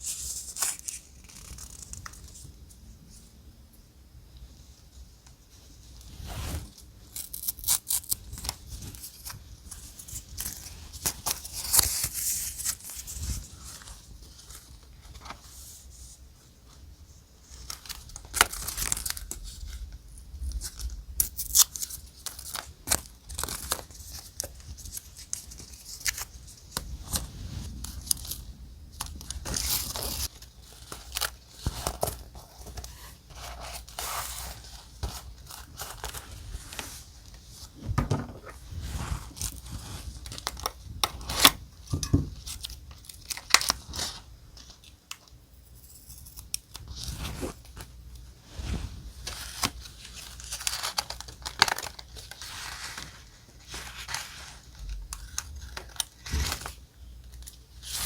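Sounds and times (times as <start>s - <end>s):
paper rustling and crinkling: 0.0s - 2.6s, 5.5s - 16.8s, 20.5s - 45.3s, 46.7s - 58.0s.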